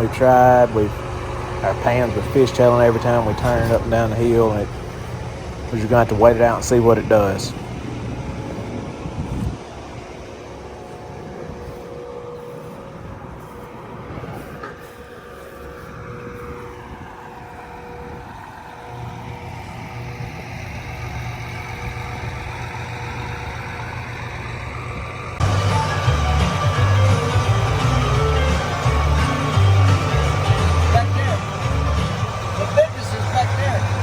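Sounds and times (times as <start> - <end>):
vehicle engine running: 0.0 - 34.0
music: 25.4 - 34.0.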